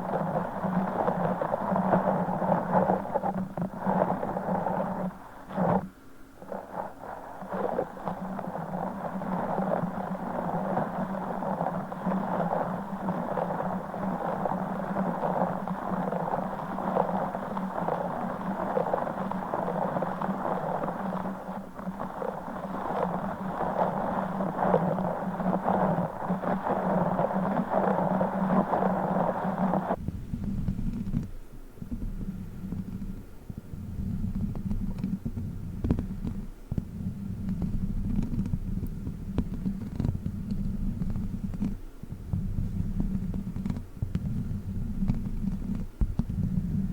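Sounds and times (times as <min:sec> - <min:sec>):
fine crackles of squeezed gel ball: 0:00.0 - 0:31.1.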